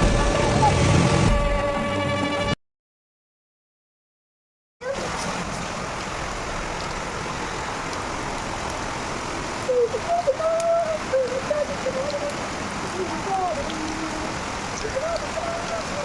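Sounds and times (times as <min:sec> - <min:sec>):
heavy rain: 0:00.0 - 0:01.6, 0:04.8 - 0:16.0
flowing floodwater: 0:04.8 - 0:16.0
person calling out faintly: 0:09.7 - 0:16.0.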